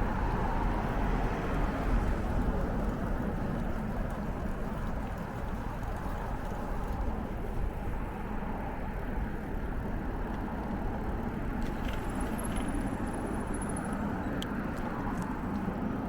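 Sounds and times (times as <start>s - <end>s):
bicycle tyres rolling: 0.0s - 16.0s.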